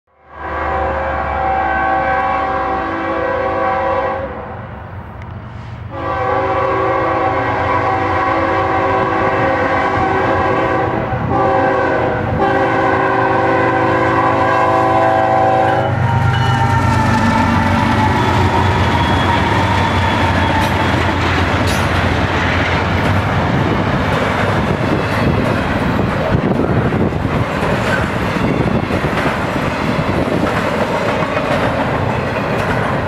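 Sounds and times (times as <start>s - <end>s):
locomotive air horn blasts: 0.3s - 4.6s, 5.9s - 20.9s.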